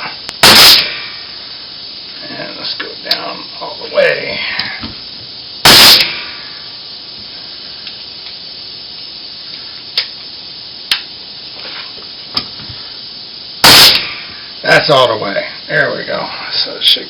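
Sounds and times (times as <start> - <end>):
pneumatic nail gun firing: 0.4 - 1.3, 5.6 - 6.6, 13.6 - 14.5.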